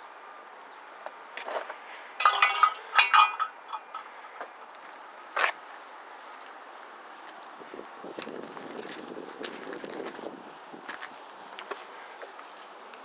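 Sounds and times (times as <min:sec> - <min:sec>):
steady outdoor hiss: 0:00.0 - 0:13.0
metallic clinks and rattles: 0:02.2 - 0:04.1.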